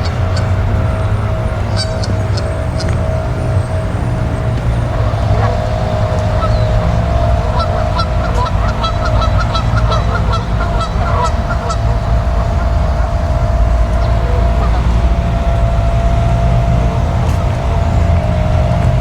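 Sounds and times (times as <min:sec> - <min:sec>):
geese honking: 0:00.0 - 0:19.0
low rumble: 0:00.0 - 0:19.0.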